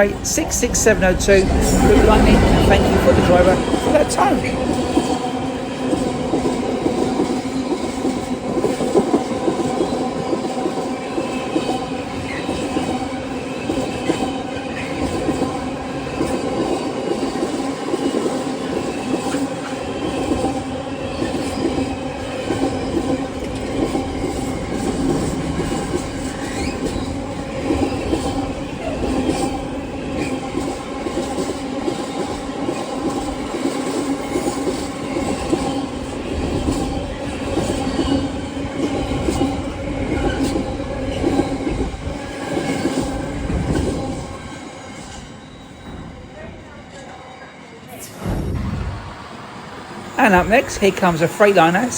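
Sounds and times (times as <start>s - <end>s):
locomotive engine drone: 0.0s - 5.5s
train wheels clattering over rails: 0.1s - 45.2s.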